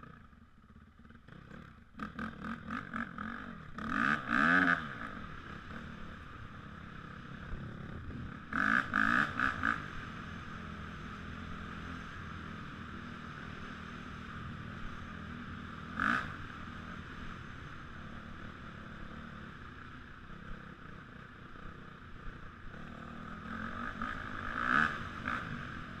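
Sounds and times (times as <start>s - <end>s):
dirt bike engine running: 0.0s - 26.0s.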